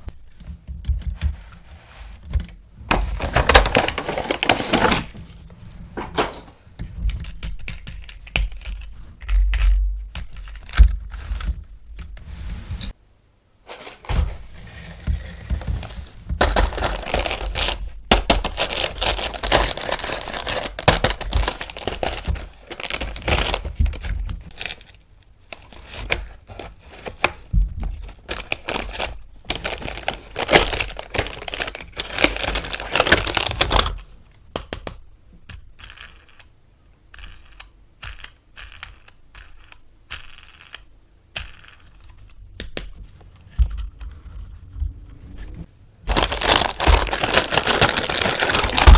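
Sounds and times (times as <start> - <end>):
plastic wrap crinkling and tearing: 2.9 - 5.2, 15.2 - 25.0, 25.6 - 34.1, 46.1 - 48.9
plastic toy parts clicking: 28.2 - 43.0.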